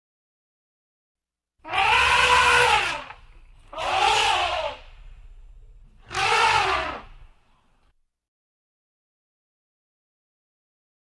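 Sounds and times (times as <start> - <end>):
elephant trumpeting: 1.6 - 5.0, 6.0 - 7.3.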